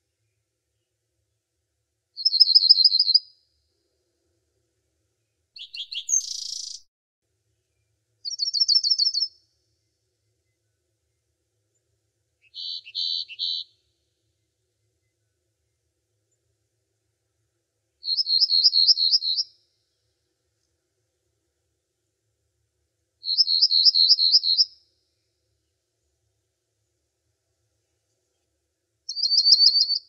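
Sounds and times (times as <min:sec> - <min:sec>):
songbird trills and buzzy calls: 0:02.2 - 0:03.3, 0:05.6 - 0:06.9, 0:08.2 - 0:09.4, 0:12.4 - 0:13.8, 0:18.0 - 0:19.6, 0:23.2 - 0:24.8, 0:29.1 - 0:30.0.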